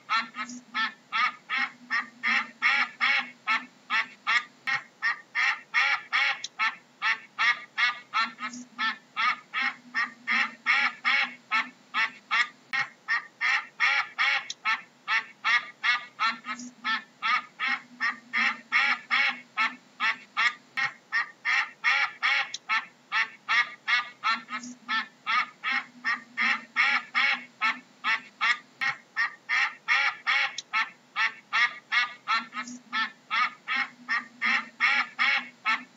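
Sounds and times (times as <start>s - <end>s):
duck quacking: 0.0s - 35.9s.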